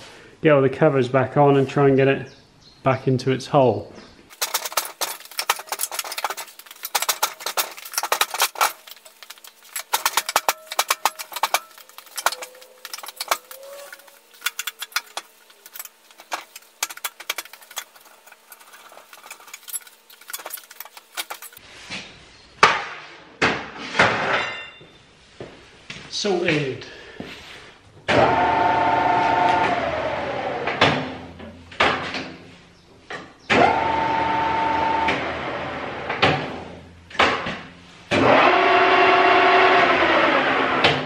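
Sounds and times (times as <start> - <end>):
metallic clinks of hand tools: 4.4 - 21.6.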